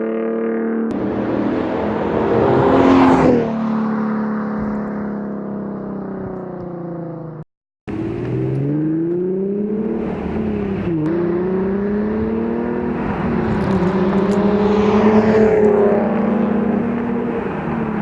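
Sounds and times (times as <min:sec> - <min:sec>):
car exhaust accelerating hard: 0:07.9 - 0:18.0.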